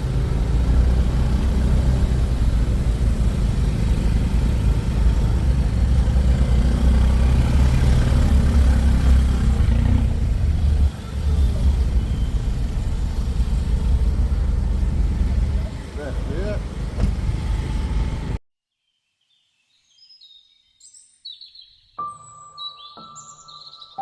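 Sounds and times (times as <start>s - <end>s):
car engine and road rumble: 0.0s - 18.4s.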